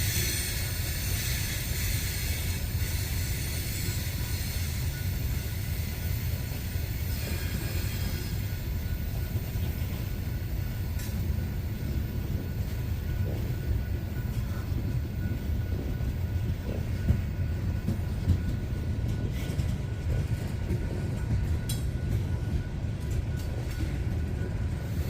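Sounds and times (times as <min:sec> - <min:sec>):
train wheels rumbling on rail: 0:00.0 - 0:25.0
high squeal of wheels: 0:07.0 - 0:08.5.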